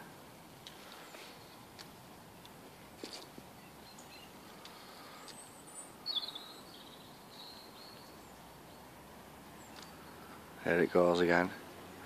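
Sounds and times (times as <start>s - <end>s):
faint outdoor hiss: 0.0s - 12.0s
small bird chirping: 2.4s - 8.9s, 9.6s - 10.4s.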